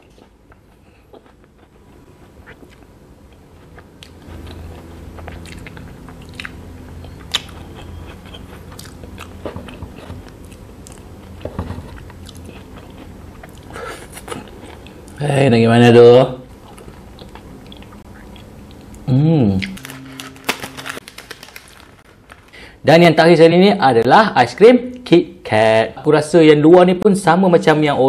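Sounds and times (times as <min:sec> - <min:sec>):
chewing: 0:00.1 - 0:15.2.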